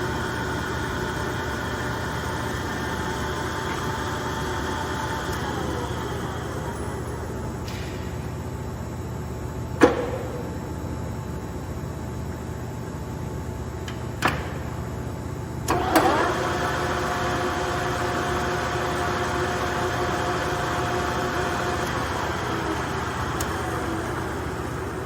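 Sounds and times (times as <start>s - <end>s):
lathe humming: 0.0s - 7.8s, 15.6s - 25.0s
lathe whine: 0.0s - 7.8s, 15.5s - 25.0s
machine clunk: 9.8s - 10.6s.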